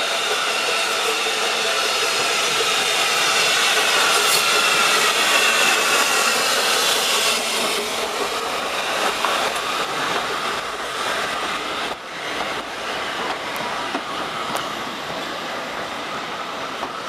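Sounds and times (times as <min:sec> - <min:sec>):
train carriages rumbling past: 0:00.0 - 0:17.0
wheels clicking over rail joints: 0:02.1 - 0:14.8.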